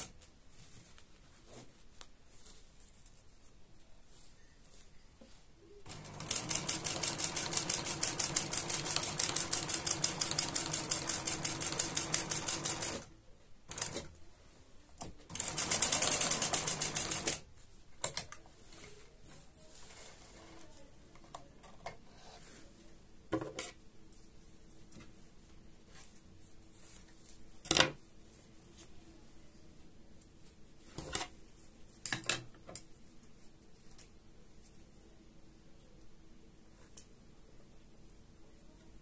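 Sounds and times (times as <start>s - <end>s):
sewing machine stitching: 5.8s - 13.1s, 13.7s - 14.1s, 15.3s - 17.4s.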